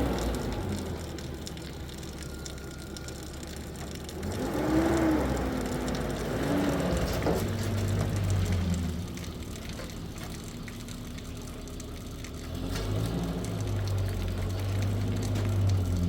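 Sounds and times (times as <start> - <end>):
engine revving: 0.0 - 1.1, 4.0 - 9.2, 12.2 - 16.0.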